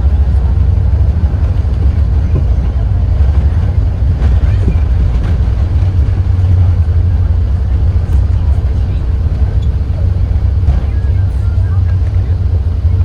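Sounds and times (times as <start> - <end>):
aircraft cabin rumble: 0.0 - 13.0
faint voices: 0.0 - 13.0.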